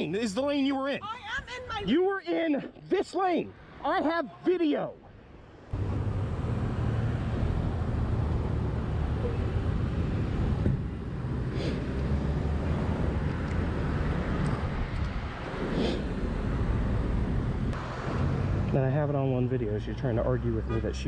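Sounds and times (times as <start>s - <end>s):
road noise: 0.0s - 21.0s
wind noise: 9.3s - 18.7s.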